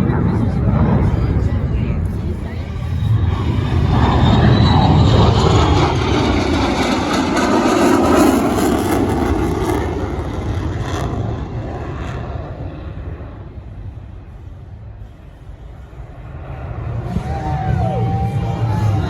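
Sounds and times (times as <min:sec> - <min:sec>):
fighter jet flying past: 0:00.0 - 0:19.0.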